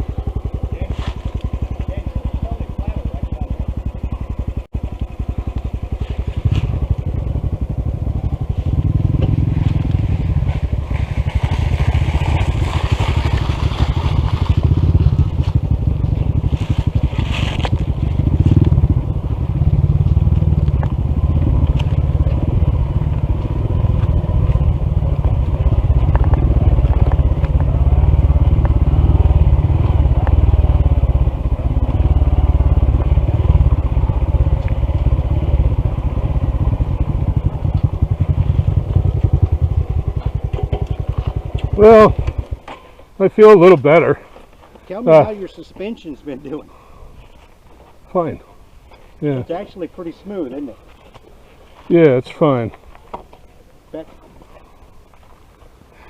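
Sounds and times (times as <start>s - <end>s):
motorcycle engine running: 0.0s - 55.3s
crunching scraping noise: 16.4s - 18.7s.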